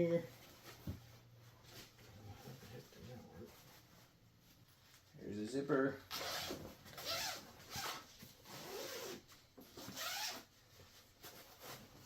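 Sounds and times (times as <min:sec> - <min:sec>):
zipper rasping: 0:06.1 - 0:10.5.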